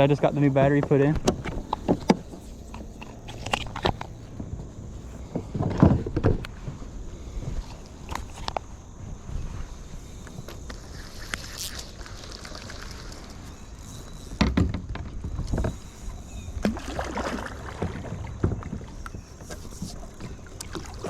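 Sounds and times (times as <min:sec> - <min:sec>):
water sloshing around kayak: 0:00.0 - 0:21.0.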